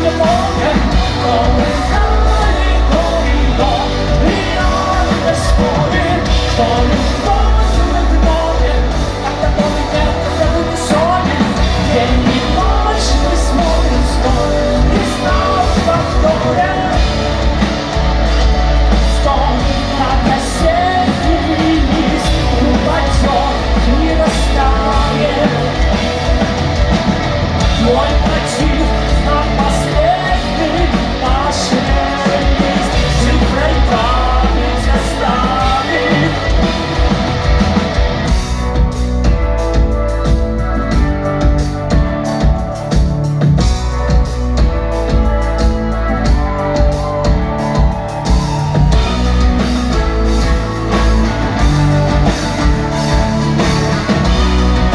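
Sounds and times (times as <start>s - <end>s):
sung and shouted vocals: 0.0s - 38.4s
rock band playing live: 0.0s - 54.9s.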